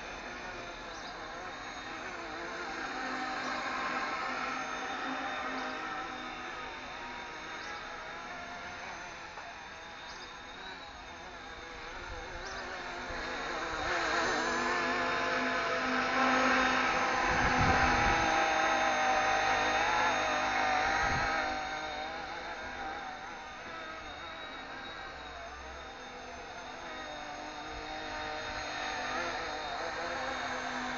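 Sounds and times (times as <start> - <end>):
rc helicopter whine: 0.0 - 30.9.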